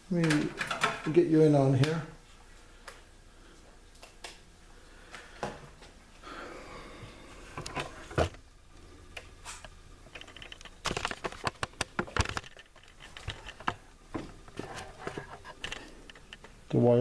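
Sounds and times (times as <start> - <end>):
objects clicking and rattling: 0.2 - 1.2, 9.6 - 16.6.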